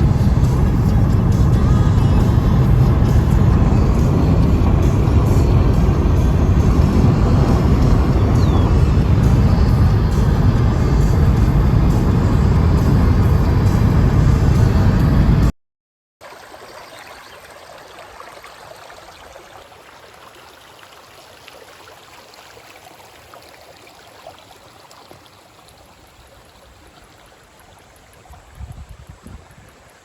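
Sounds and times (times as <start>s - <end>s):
low bumps: 0.0s - 15.5s
stream flowing over rocks: 16.2s - 30.0s.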